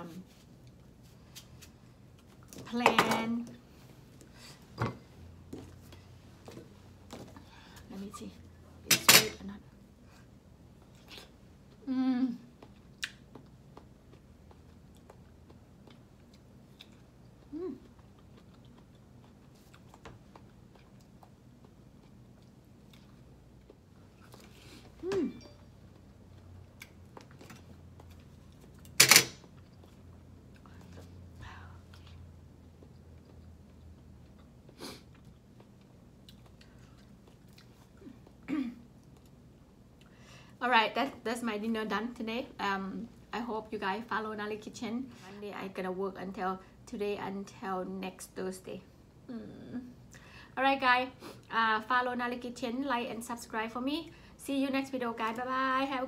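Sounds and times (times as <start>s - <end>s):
person chewing: 12.5s - 24.6s, 31.9s - 40.1s.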